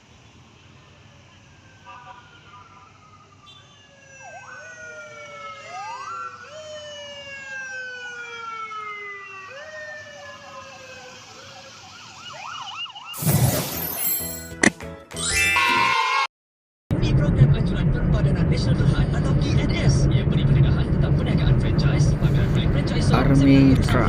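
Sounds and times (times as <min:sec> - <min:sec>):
police car siren: 0:00.5 - 0:13.2.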